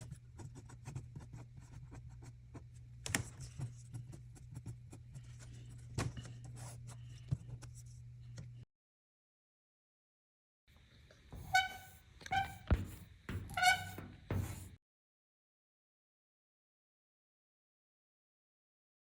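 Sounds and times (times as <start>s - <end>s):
steady low hum: 0.1s - 8.7s.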